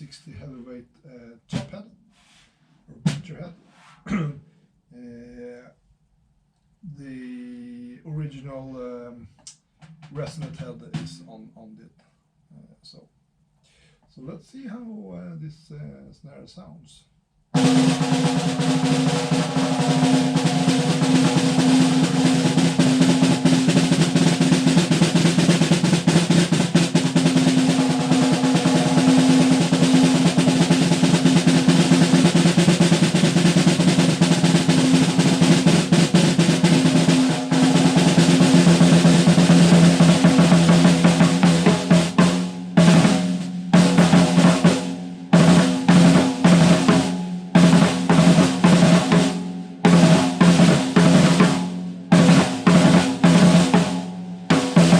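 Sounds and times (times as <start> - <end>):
snare drum roll: 9.8 - 11.3, 17.6 - 54.9
sharp snare drum hits: 17.6 - 54.9.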